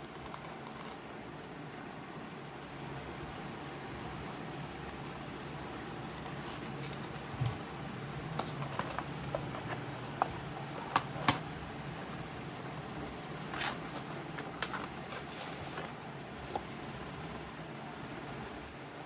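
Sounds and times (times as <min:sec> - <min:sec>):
packaging clicks and taps: 0:08.3 - 0:11.5, 0:13.5 - 0:15.9.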